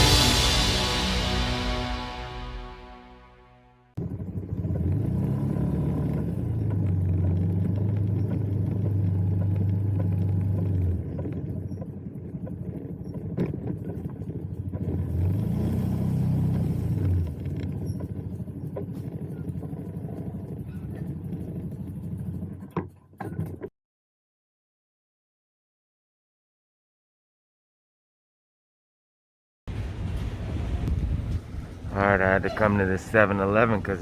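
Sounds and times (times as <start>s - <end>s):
road noise: 0.0s - 22.9s, 29.7s - 34.0s
motorbike engine revving: 4.0s - 22.8s.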